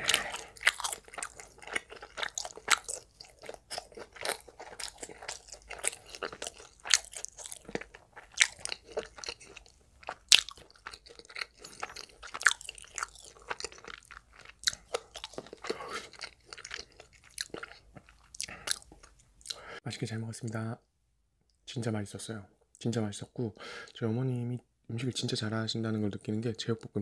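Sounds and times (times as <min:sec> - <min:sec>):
person chewing crunchy food: 0:00.0 - 0:19.6.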